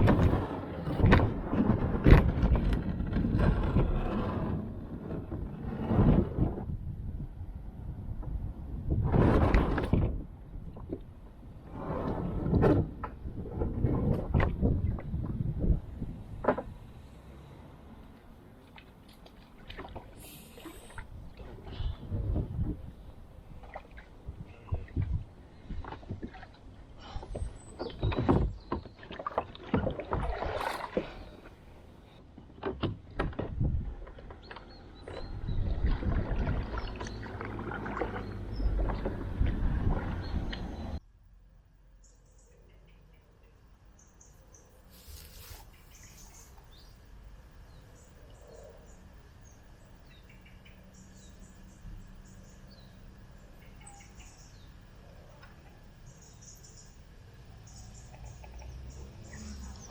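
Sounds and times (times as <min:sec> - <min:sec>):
steady low rumble: 0:00.0 - 0:27.8, 0:33.5 - 0:59.9
paddle strokes splashing water: 0:18.6 - 0:22.8, 0:23.4 - 0:32.1, 0:33.3 - 0:41.0
rush of water: 0:29.1 - 0:32.2, 0:35.5 - 0:40.7
birds chirping: 0:42.0 - 0:59.9.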